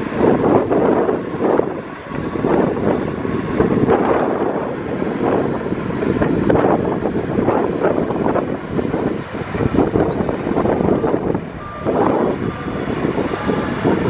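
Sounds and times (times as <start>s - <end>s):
heavy diesel engine running: 0.0s - 14.0s.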